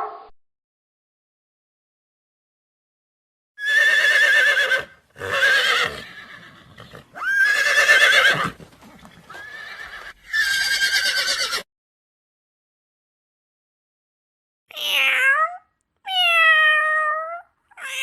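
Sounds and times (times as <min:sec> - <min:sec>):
horse whinnying: 0:03.6 - 0:11.6.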